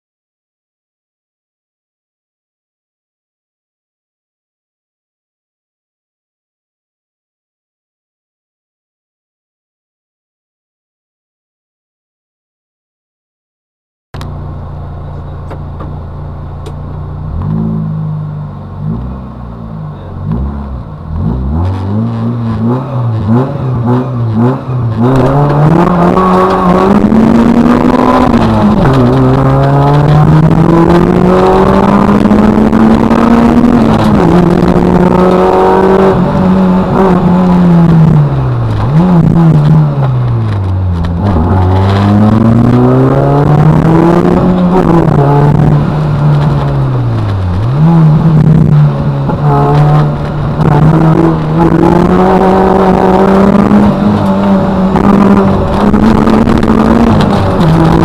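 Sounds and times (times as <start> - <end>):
car engine idling and revving: 14.2 - 58.0.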